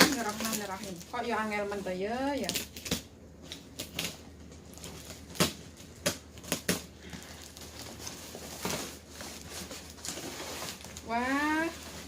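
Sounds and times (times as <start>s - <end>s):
packaging crinkling and clicking: 0.0s - 1.2s.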